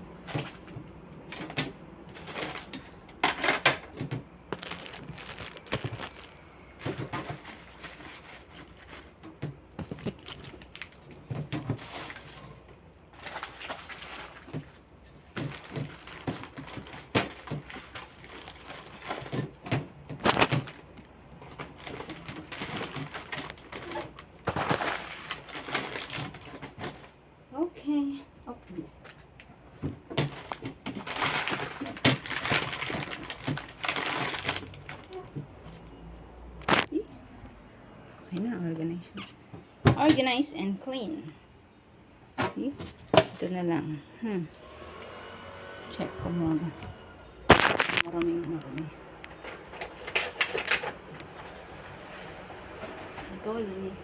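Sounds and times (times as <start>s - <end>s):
plastic containers clattering: 0.1s - 27.2s, 29.0s - 35.8s, 42.4s - 43.7s, 46.4s - 54.0s.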